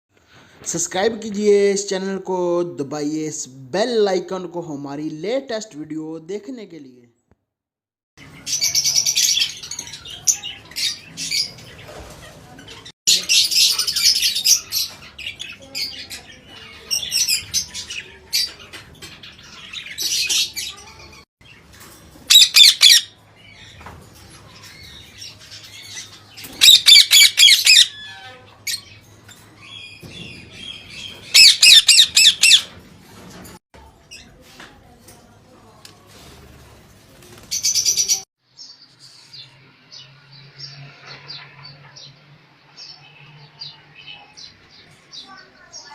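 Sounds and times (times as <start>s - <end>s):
parakeets squawking and chattering: 8.2s - 33.4s, 37.4s - 38.2s
parakeets shrieking: 22.3s - 23.2s, 26.6s - 28.8s, 30.7s - 32.7s.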